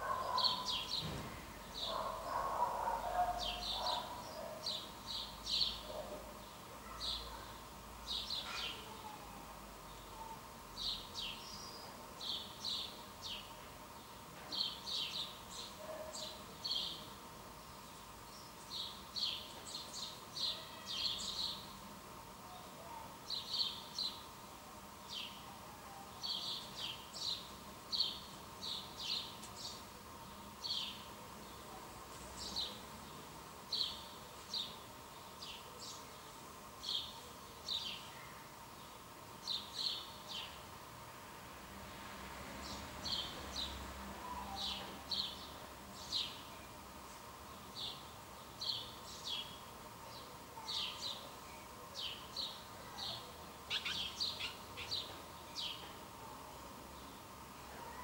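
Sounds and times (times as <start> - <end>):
birds chirping: 0.0 - 9.1, 47.8 - 56.1.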